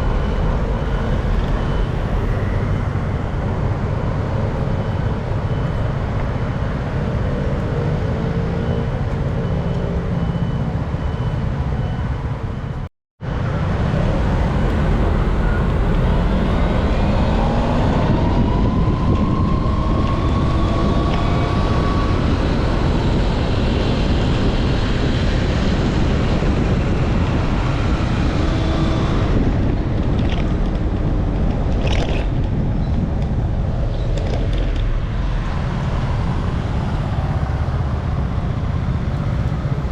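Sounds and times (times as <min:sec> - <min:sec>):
passing vehicle engines: 0:00.0 - 0:39.9
wind buffeting microphone: 0:13.3 - 0:39.9.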